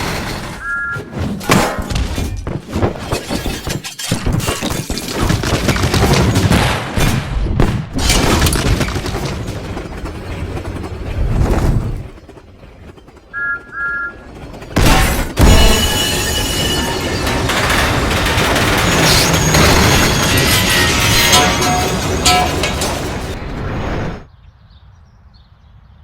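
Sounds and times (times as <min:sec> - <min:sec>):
smashing and shattering: 0:01.4 - 0:06.6, 0:14.8 - 0:23.4.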